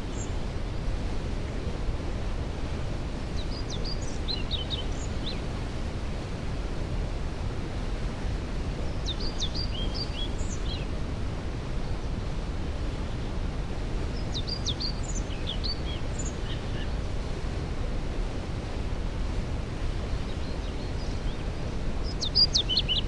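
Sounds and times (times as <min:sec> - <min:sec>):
songbird singing: 0:03.4 - 0:05.4, 0:08.9 - 0:10.9, 0:14.2 - 0:17.0, 0:20.1 - 0:23.0.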